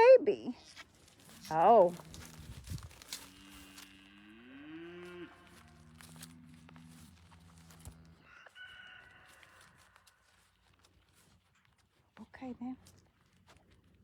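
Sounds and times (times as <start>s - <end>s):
low farm animal call: 1.2s - 10.8s
higher farm animal call: 3.2s - 10.4s.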